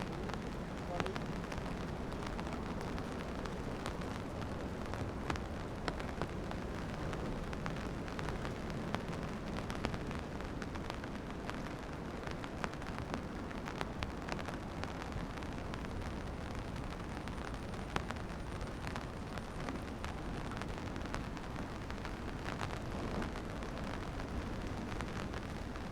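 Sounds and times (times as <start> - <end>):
steady low rumble: 0.0 - 10.3
rain drops striking: 0.0 - 25.9.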